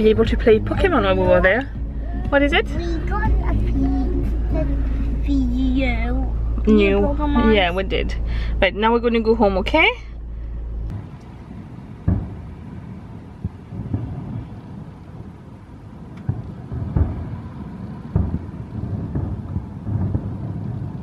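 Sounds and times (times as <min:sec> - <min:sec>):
car cabin hum: 0:00.0 - 0:21.0
steady low rumble: 0:00.0 - 0:21.0
distant fireworks booming: 0:10.9 - 0:21.0.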